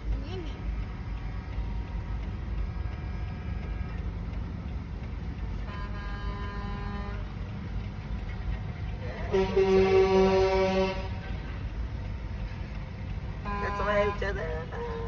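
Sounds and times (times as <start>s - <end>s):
heavy trucks rumbling past: 0.0s - 15.0s
truck horn: 5.7s - 7.4s, 9.2s - 11.5s, 13.4s - 14.3s.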